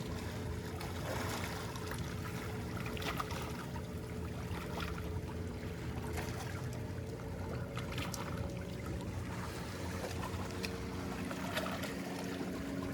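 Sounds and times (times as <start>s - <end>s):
small waves lapping on rocks: 0.0s - 3.8s
faint steady drone: 0.0s - 12.9s.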